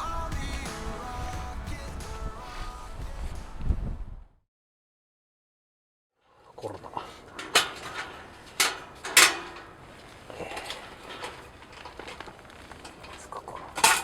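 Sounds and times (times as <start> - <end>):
light rustling: 6.6 - 14.0
heater clacks and knocks: 7.2 - 14.0.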